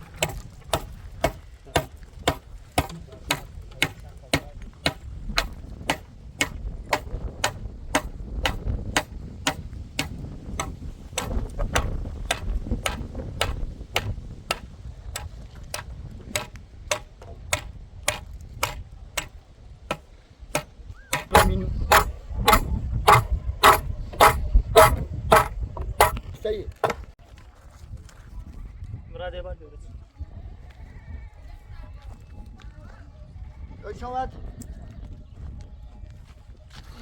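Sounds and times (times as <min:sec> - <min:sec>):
sharp knocks: 0:00.2 - 0:14.6, 0:15.2 - 0:19.3, 0:20.6 - 0:26.2, 0:26.8 - 0:27.1.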